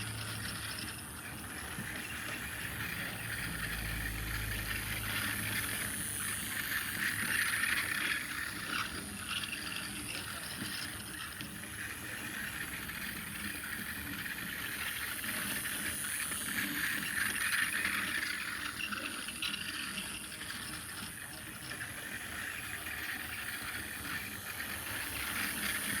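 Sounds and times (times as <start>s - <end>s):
toy trains whirring on track: 0.0s - 26.0s.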